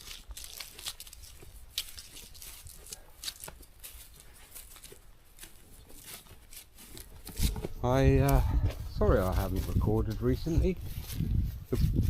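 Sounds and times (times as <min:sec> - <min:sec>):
footsteps crunching: 0:00.0 - 0:12.0
wind rumble on microphone: 0:07.4 - 0:12.0.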